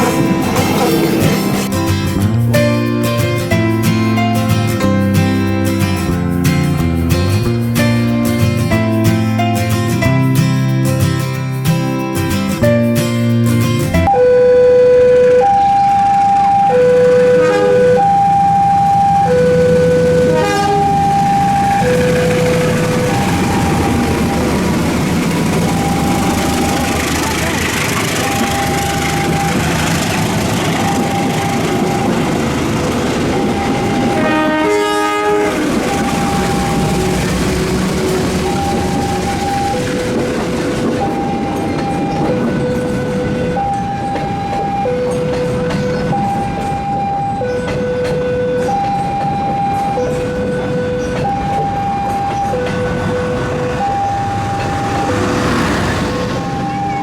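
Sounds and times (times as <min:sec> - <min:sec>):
wheel clatter on rails: 0:00.0 - 0:10.7, 0:16.2 - 0:57.0
train rumbling past: 0:00.0 - 0:14.2, 0:14.8 - 0:57.0
level crossing alarm two-tone: 0:14.0 - 0:57.0
train horn chord: 0:16.7 - 0:18.2, 0:19.3 - 0:24.6, 0:33.4 - 0:39.4.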